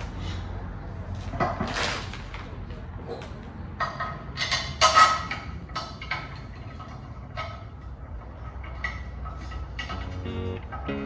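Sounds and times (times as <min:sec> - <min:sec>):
metallic clanks of tools: 0:03.1 - 0:11.0.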